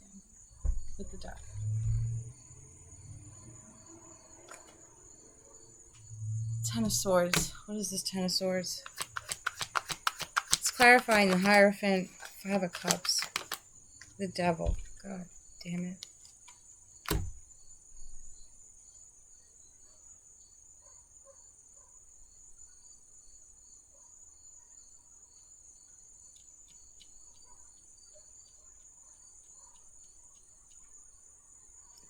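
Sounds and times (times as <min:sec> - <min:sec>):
pulsing insect chirp: 0:00.0 - 0:08.8
crickets trilling: 0:00.1 - 0:19.5
cards tapping and clicking: 0:07.3 - 0:07.6, 0:08.8 - 0:15.1, 0:15.7 - 0:17.3.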